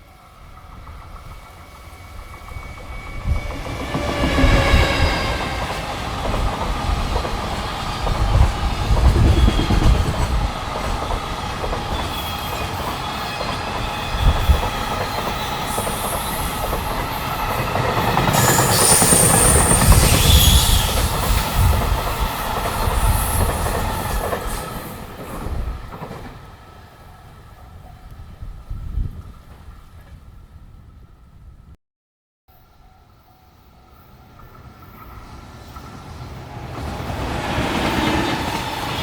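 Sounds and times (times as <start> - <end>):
freight train rumbling past: 0.0 - 31.6, 32.8 - 39.0
high wheel squeal: 1.6 - 6.3, 11.9 - 25.0.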